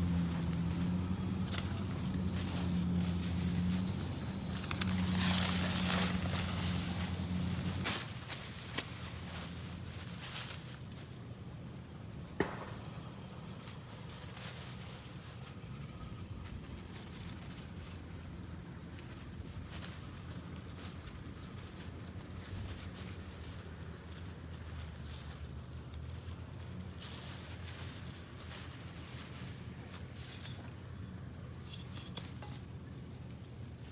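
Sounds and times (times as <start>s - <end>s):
faint insect chirping: 0.0s - 33.9s.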